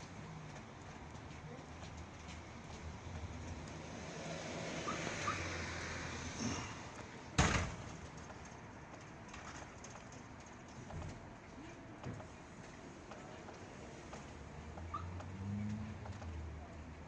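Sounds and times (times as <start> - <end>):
sharp thump: 7.4 - 7.9.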